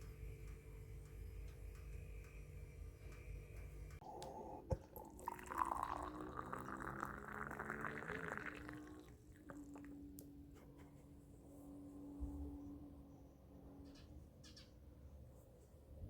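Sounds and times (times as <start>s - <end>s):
liquid pouring: 4.3s - 10.1s.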